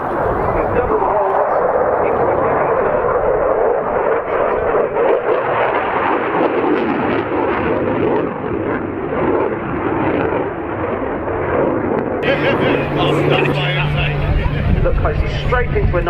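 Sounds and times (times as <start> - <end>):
fighter jet flying past: 0.0 - 16.0.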